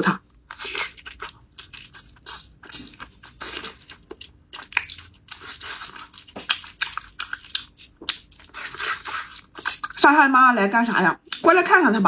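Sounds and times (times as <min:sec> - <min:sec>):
wet chewing and mouth smacking: 0:00.2 - 0:10.0, 0:11.2 - 0:11.6
sticky squelches of meat pulled apart: 0:00.4 - 0:10.0.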